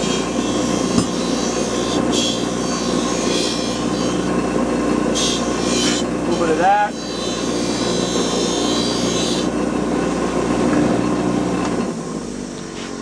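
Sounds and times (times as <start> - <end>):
metal scraping against wheel: 0.0 - 9.5
cleaning wheel motor running: 0.0 - 12.1.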